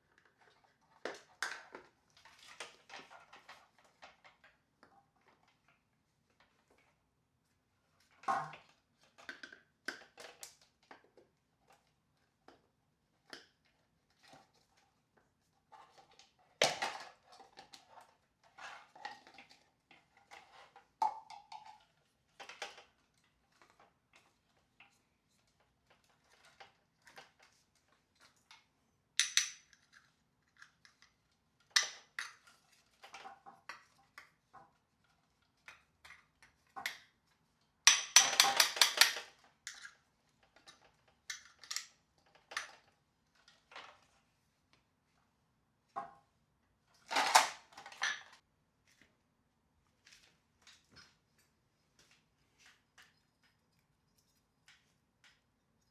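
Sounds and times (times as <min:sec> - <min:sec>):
plastic parts clicking and knocking: 0:16.0 - 0:34.8, 0:37.9 - 0:44.2, 0:47.0 - 0:48.4.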